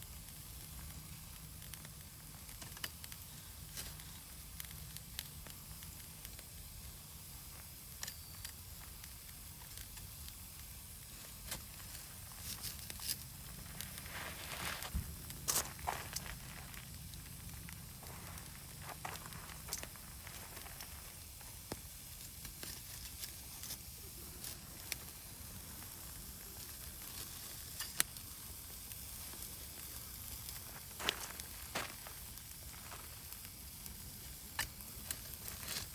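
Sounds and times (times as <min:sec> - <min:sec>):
campfire crackling and hissing: 0:00.0 - 0:35.9
sharp fire pops: 0:00.0 - 0:35.9.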